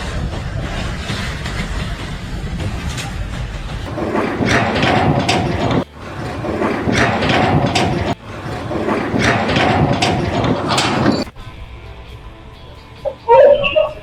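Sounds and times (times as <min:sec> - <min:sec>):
machinery rattling and grinding: 0:03.9 - 0:11.8.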